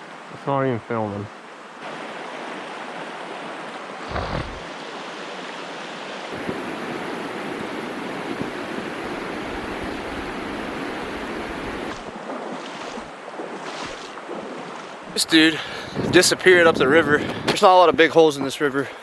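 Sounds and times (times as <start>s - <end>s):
river water flowing: 0.0s - 15.9s
brief thump: 4.1s - 4.6s.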